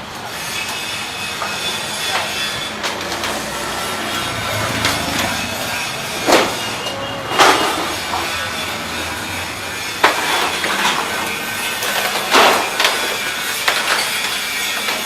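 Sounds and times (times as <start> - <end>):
steel roll-up door rising: 0.0 - 15.0.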